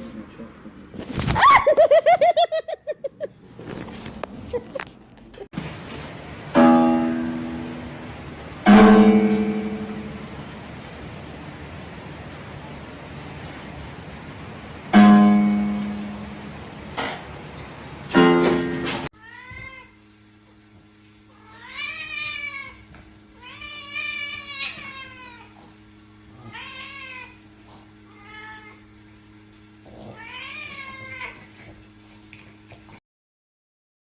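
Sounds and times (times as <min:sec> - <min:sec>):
steady low hum: 0:03.2 - 0:19.1
loud pitched sounds: 0:06.5 - 0:11.4
cat meowing: 0:30.2 - 0:31.4.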